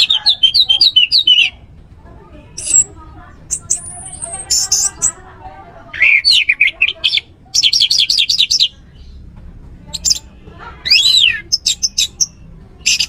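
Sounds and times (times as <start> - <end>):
thrush singing whistled notes: 10.8 - 13.0.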